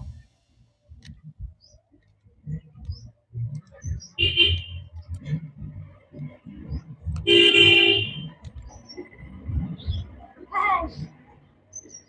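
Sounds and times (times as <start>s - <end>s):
horn tooting: 4.2s - 4.9s, 7.3s - 8.4s.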